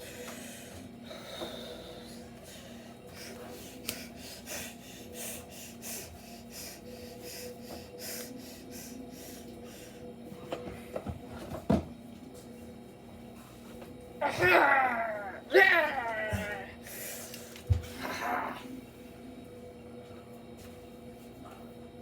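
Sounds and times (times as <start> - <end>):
breathy hissing puffs: 0.0 - 10.2
steady low hum: 0.0 - 22.0.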